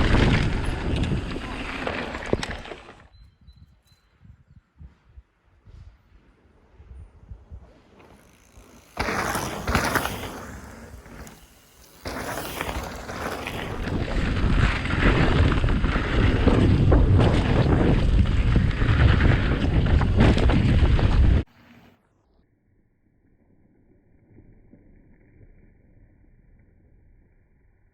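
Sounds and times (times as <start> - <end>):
bike tyre rumble: 0.0 - 3.2, 4.8 - 22.2
wind buffeting microphone: 0.0 - 21.5.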